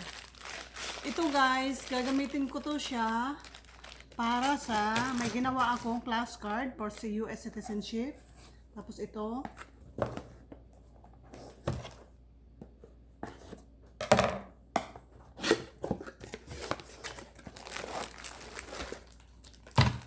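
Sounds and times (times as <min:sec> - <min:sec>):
packaging tearing and crinkling: 0:00.0 - 0:06.0, 0:16.3 - 0:20.0.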